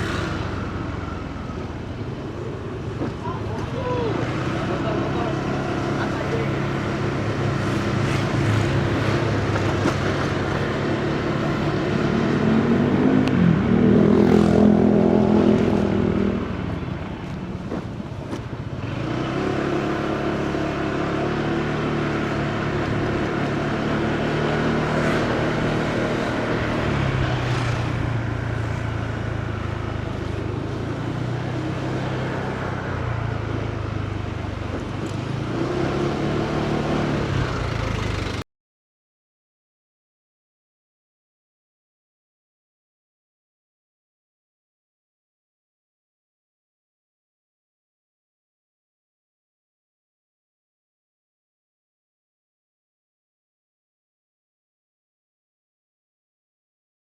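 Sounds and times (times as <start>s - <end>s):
road and wind noise: 0.0s - 38.5s
motorcycle engine running: 36.2s - 38.4s.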